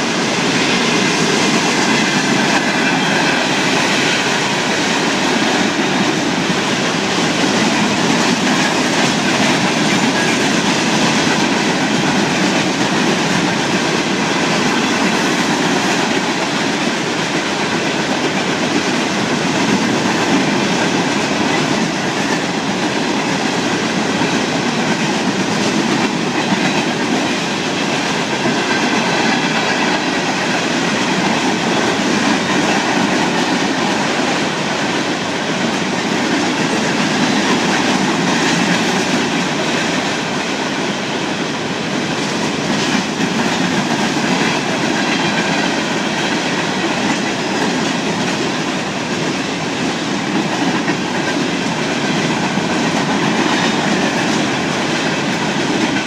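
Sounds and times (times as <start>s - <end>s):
train wheels clattering on rails: 0.0s - 56.0s.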